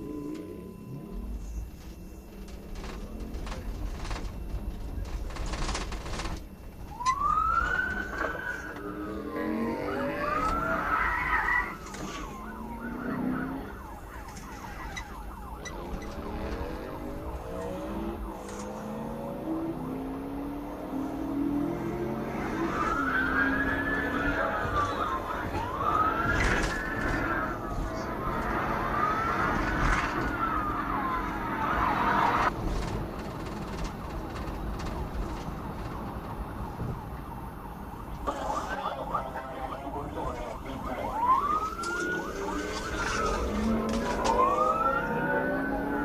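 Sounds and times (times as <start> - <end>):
police siren wailing and yelping: 0.0 - 5.3, 6.6 - 32.5, 36.6 - 46.0
vehicle and road noise: 0.0 - 46.0
vehicle engine accelerating: 15.2 - 32.7, 41.2 - 46.0.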